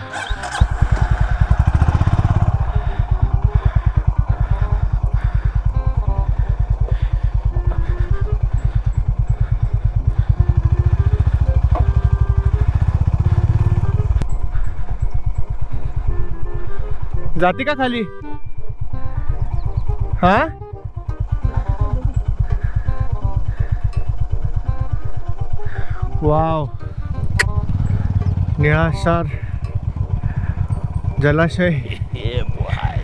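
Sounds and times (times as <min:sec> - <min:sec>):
motorcycle engine thumping: 0:00.0 - 0:14.4, 0:27.1 - 0:32.1.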